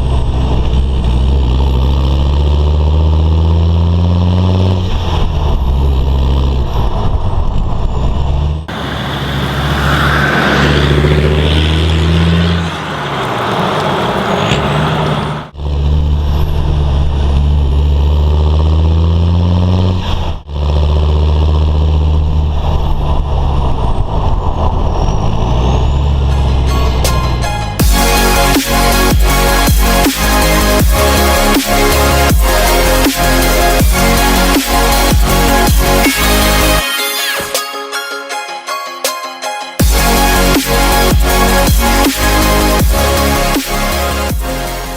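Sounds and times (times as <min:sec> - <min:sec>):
loud diesel engine revving: 0:08.7 - 0:16.0, 0:27.8 - 0:36.8, 0:39.8 - 0:44.9.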